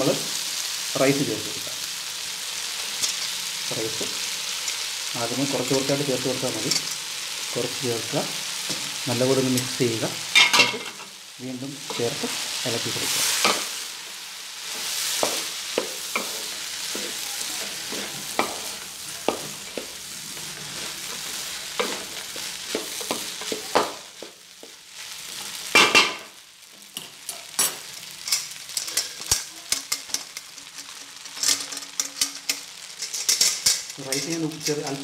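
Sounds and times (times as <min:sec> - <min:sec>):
rice sizzling in a pot: 0:00.0 - 0:35.0
spoon stirring and scraping: 0:14.7 - 0:24.7, 0:28.2 - 0:35.0.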